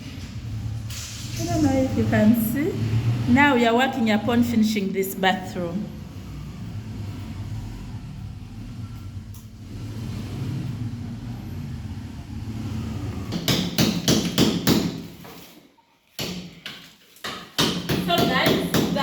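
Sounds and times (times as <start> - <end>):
low steady rumble: 0.0 - 13.3.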